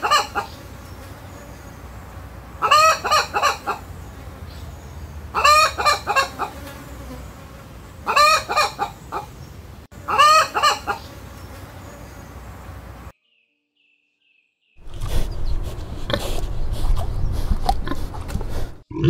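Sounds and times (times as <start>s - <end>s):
hen clucking: 0.0s - 0.6s, 2.6s - 3.9s, 5.3s - 6.7s, 8.0s - 9.4s, 10.0s - 11.2s.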